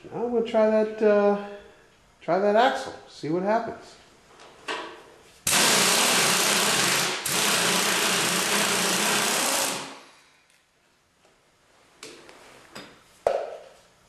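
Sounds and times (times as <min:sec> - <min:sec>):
impact wrench spinning: 0:05.5 - 0:10.1.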